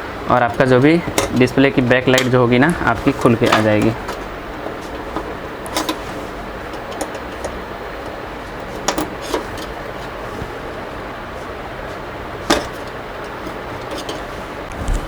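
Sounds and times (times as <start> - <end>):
plastic clips clicking: 0.3 - 10.1.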